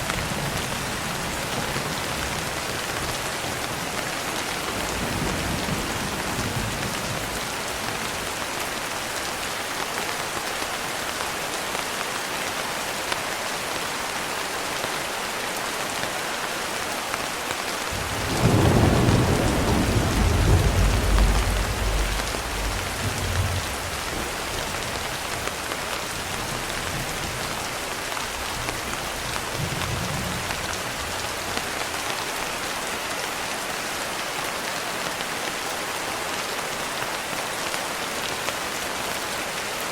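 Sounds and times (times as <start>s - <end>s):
steady rain falling: 0.0s - 39.9s
thunder rumbling: 17.9s - 25.5s.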